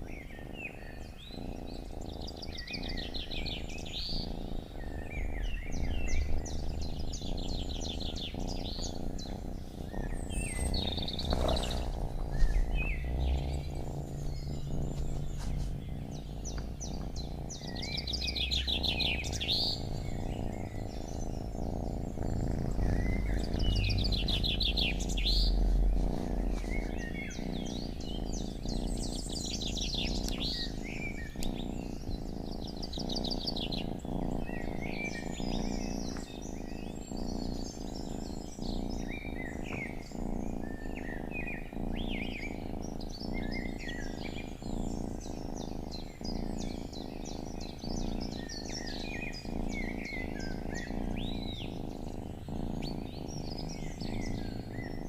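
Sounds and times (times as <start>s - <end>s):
songbirds singing: 0.0s - 55.0s
low rumbling noise: 1.2s - 40.5s.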